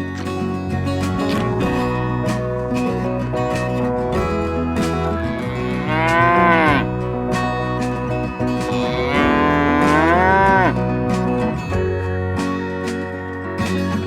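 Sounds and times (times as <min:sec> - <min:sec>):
acoustic guitar music: 0:00.0 - 0:14.0
animal calling: 0:05.3 - 0:07.0.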